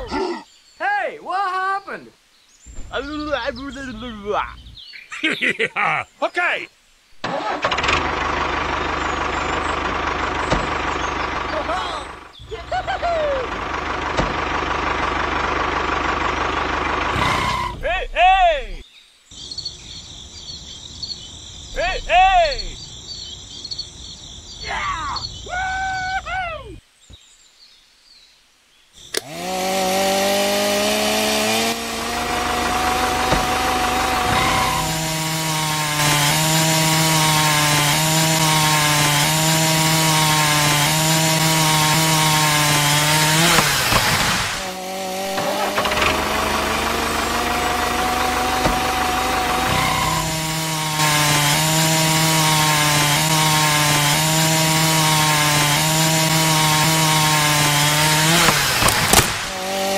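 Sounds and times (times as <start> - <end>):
saw blade cutting wood: 17.1 - 17.8, 29.2 - 59.9
small saw motor whining: 29.2 - 59.9.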